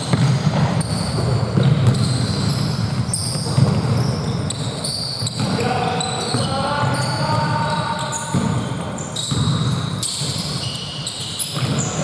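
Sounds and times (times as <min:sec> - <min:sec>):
basketball bouncing: 0:00.0 - 0:12.0
sneakers squeaking on court: 0:00.0 - 0:12.0.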